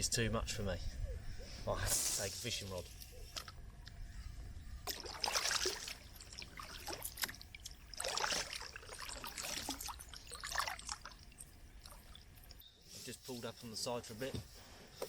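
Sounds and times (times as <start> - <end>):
paddle dipping into water: 4.8 - 12.6
water dripping off paddle: 4.9 - 12.6.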